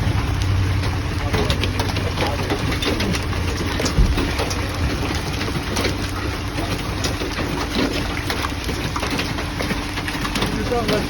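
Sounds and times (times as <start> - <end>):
car engine idling: 0.0 - 6.5
hail pelting vehicle roof: 0.0 - 11.0.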